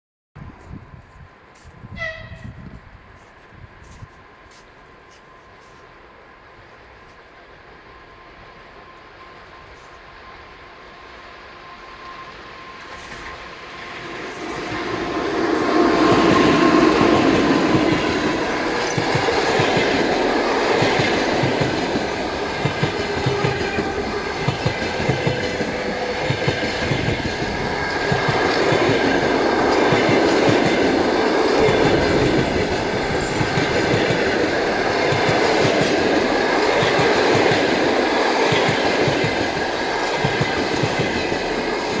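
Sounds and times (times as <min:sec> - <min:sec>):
train rumbling past: 0:00.4 - 0:42.0
wheels clacking over rail joints: 0:13.2 - 0:42.0.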